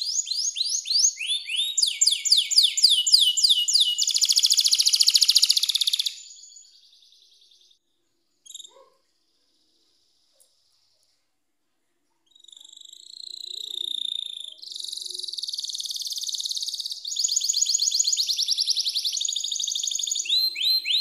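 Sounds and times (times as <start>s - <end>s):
canary singing: 0.0s - 7.7s, 12.3s - 21.0s.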